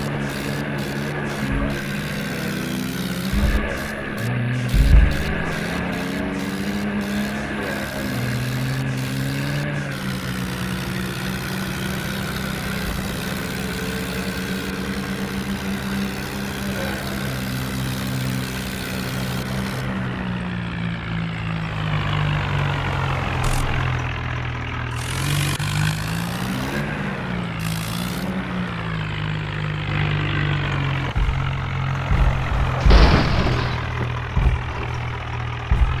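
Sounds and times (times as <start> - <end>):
tractor diesel engine running: 0.0 - 36.0
loud thump: 1.4 - 2.2, 3.3 - 6.0, 31.2 - 36.0.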